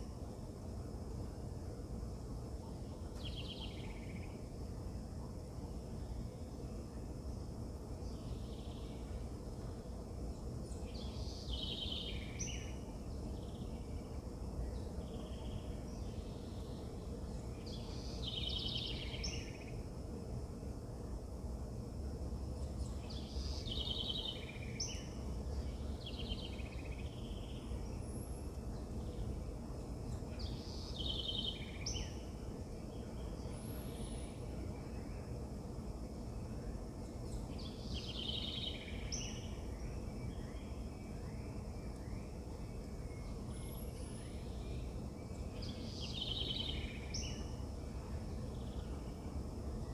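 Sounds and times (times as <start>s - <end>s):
low outdoor rumble: 0.0s - 49.9s
songbird singing with trill: 2.7s - 4.5s, 8.0s - 9.7s, 10.4s - 19.8s, 22.6s - 35.4s, 36.4s - 49.9s.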